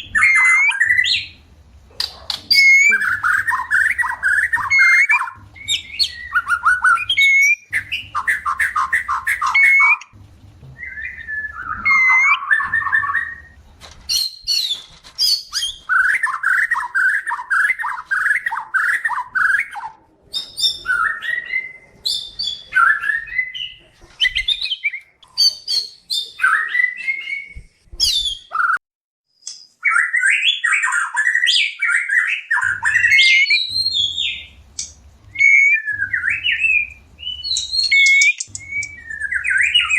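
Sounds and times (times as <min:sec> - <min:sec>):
bird chattering notes: 0:02.0 - 0:10.1.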